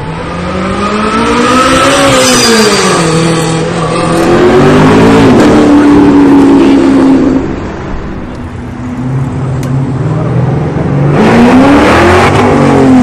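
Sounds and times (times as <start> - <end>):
car engine accelerating: 0.0 - 13.0
engine rumbling: 0.0 - 13.0.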